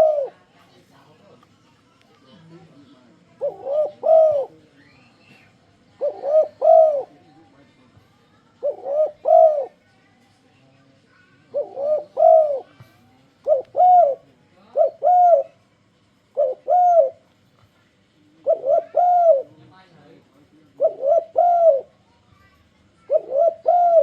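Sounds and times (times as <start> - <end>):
dove cooing: 0.0 - 0.5, 3.2 - 7.2, 8.4 - 9.8, 11.5 - 12.8, 13.4 - 15.6, 16.2 - 17.3, 18.4 - 19.6, 20.7 - 22.1, 23.0 - 24.0.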